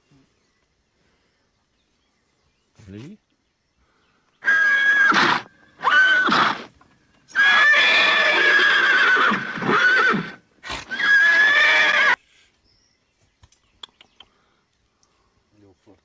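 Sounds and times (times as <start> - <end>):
horse whinnying: 4.4 - 12.2.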